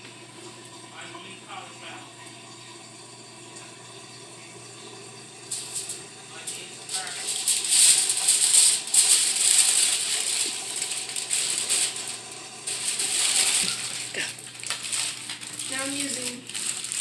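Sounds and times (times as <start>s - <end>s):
aluminium foil crinkling: 5.5s - 17.0s.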